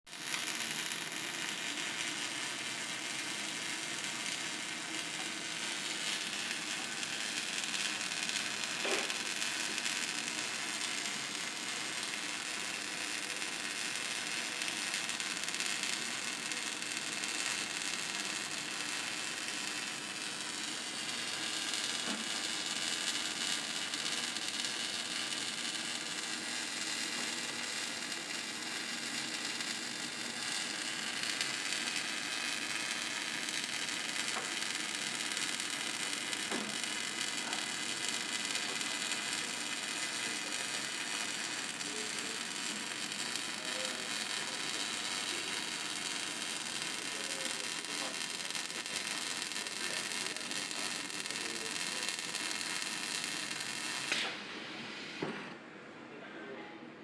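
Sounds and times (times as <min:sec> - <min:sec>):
steady treble hiss: 0:11.3 - 0:55.2.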